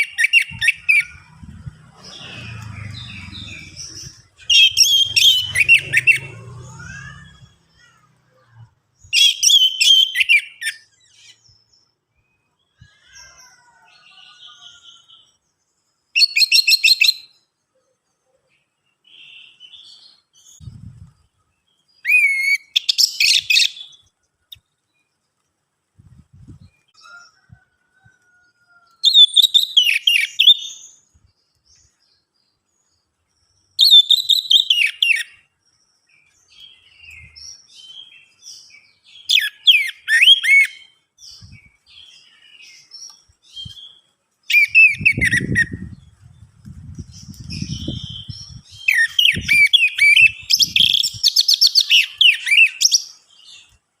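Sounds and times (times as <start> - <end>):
thrush singing: 0.5 - 7.9
low rumble: 1.0 - 7.8.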